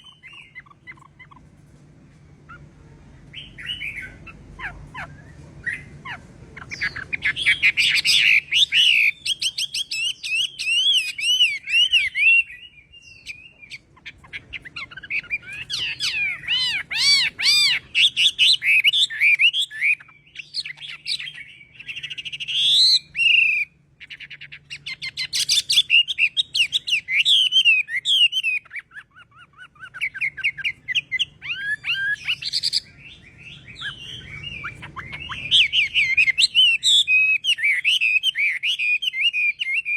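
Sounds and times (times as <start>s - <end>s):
songbird whistling: 0.0s - 1.4s, 3.3s - 39.9s.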